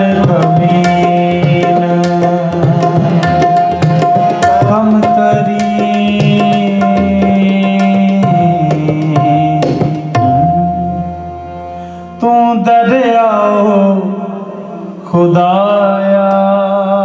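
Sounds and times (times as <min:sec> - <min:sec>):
tabla playing quick strokes: 0:00.2 - 0:11.7.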